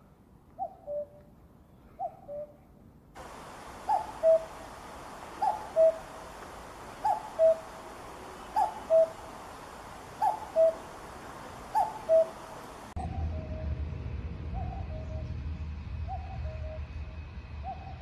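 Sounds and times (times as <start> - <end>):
cuckoo calling: 0.6 - 1.2, 3.2 - 13.6
faint steady hiss: 2.8 - 13.0.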